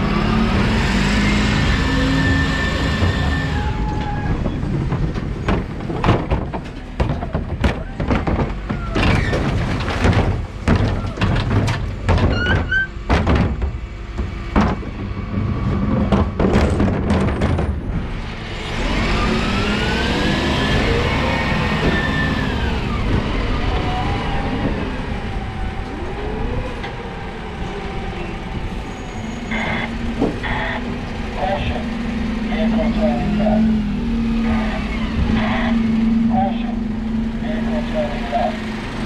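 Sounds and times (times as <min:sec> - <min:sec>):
truck drivetrain whine: 0:00.0 - 0:39.0
truck engine rumble: 0:00.0 - 0:39.0
bins knocking and thudding: 0:02.2 - 0:18.3.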